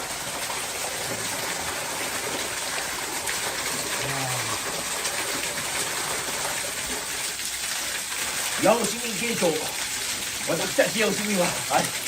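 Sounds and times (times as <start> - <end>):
faint low voice: 4.0 - 4.6.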